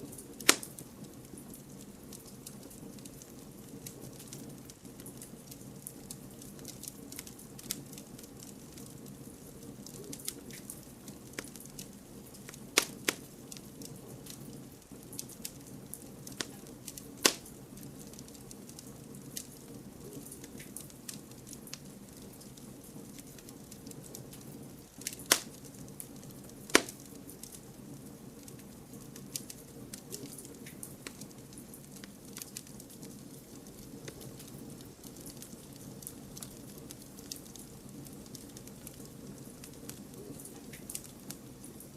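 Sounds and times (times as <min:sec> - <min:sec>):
campfire crackling: 0:00.0 - 0:41.9
loud sharp pops of fire: 0:00.1 - 0:09.1, 0:09.8 - 0:19.7, 0:20.3 - 0:27.7.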